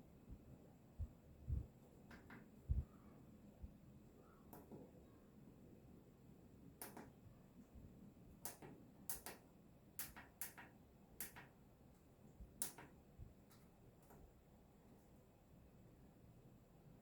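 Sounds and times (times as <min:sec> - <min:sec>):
faint sharp clicks: 0:06.8 - 0:07.1, 0:08.4 - 0:09.4, 0:10.0 - 0:11.5.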